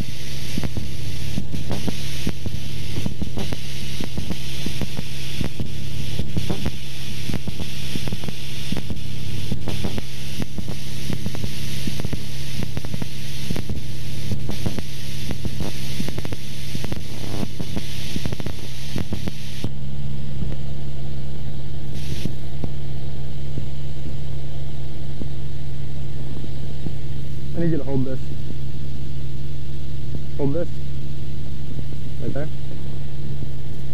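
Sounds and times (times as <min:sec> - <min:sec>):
airflow hiss: 0:00.0 - 0:19.8, 0:21.7 - 0:24.1.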